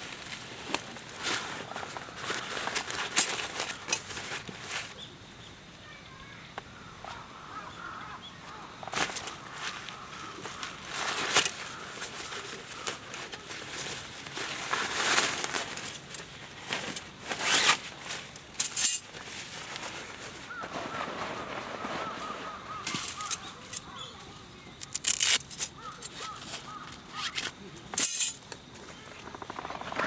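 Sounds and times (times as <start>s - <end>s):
rustling noise: 0.0s - 5.0s, 8.9s - 24.0s, 24.8s - 30.0s
birds chirping: 20.4s - 28.0s.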